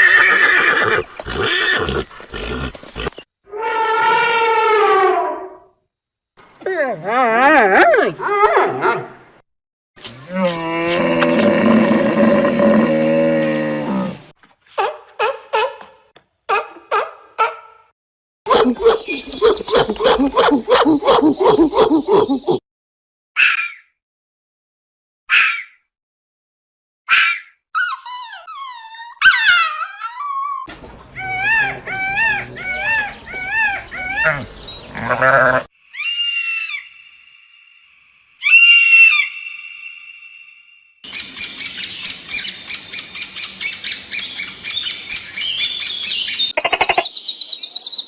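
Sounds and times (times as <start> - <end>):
dog whining and howling: 27.8 - 35.2
goat bleating: 31.0 - 35.7
cow mooing: 31.2 - 35.7.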